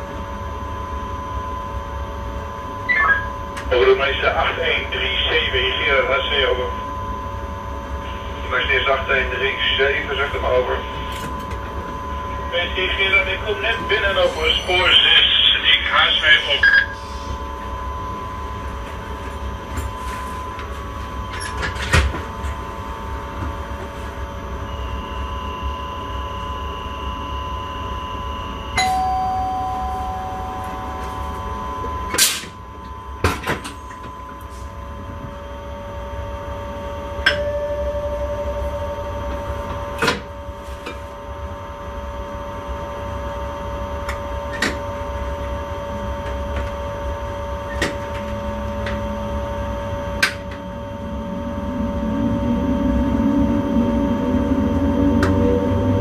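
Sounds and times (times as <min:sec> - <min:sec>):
low rumble: 0:48.3 - 0:56.0.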